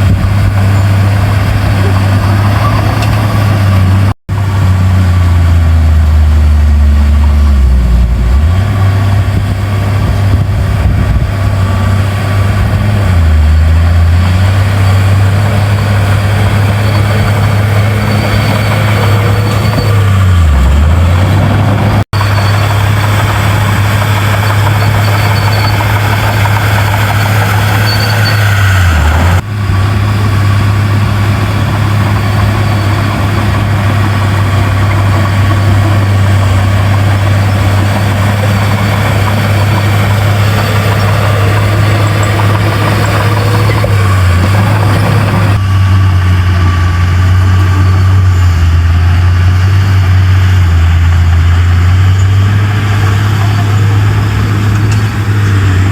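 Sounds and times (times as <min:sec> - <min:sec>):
heavy diesel engine droning: 0:00.0 - 0:55.9.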